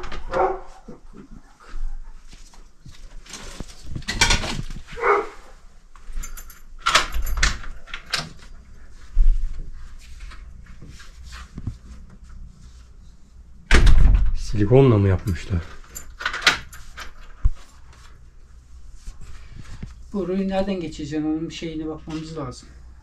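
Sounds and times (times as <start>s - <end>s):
dog barking and whining: 0.0s - 1.1s, 4.9s - 5.6s.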